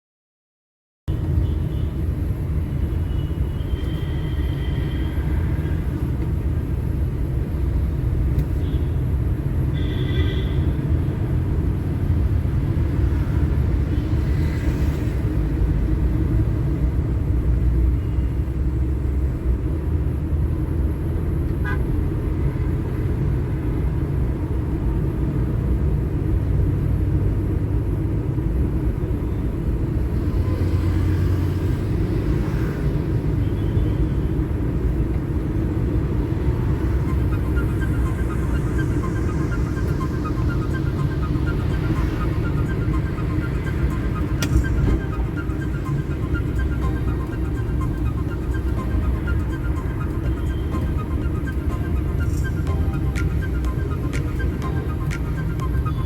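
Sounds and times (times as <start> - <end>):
vehicle driving in traffic: 1.1 - 56.0
short high-pitched tones: 36.2 - 56.0.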